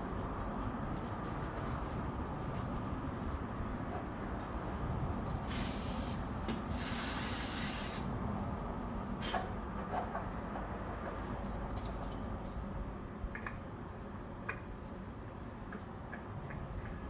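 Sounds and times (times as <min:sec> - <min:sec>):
hissing spray bursts: 0:05.4 - 0:08.1.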